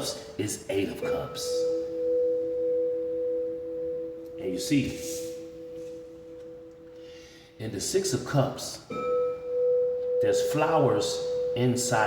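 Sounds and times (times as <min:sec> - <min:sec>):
person talking: 0:00.0 - 0:01.8, 0:04.4 - 0:05.6, 0:10.2 - 0:12.0
ringing meditation tone drone: 0:00.0 - 0:12.0.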